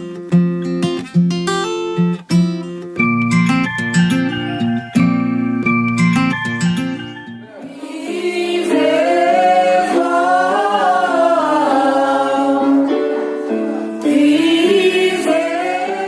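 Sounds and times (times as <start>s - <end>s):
women's choir singing a march: 7.7s - 13.2s, 14.0s - 16.0s.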